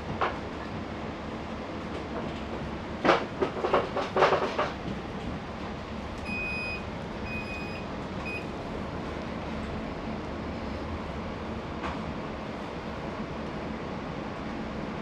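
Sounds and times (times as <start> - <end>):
train engine humming: 0.0 - 15.0
loud clattering knocks: 3.0 - 4.8.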